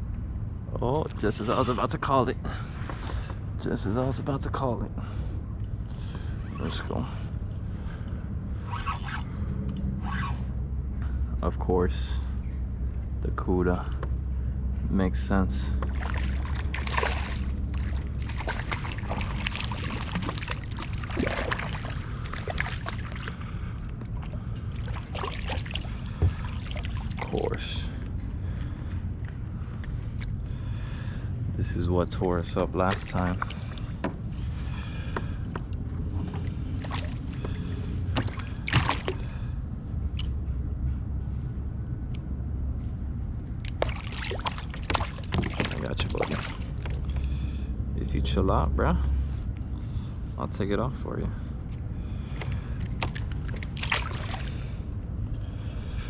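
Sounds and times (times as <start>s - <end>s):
water splashing and sloshing: 5.0s - 11.2s, 15.3s - 41.5s, 42.6s - 50.2s, 51.7s - 56.0s
splashes and knocks: 15.8s - 27.5s, 36.2s - 39.4s, 43.6s - 47.3s, 52.4s - 54.8s.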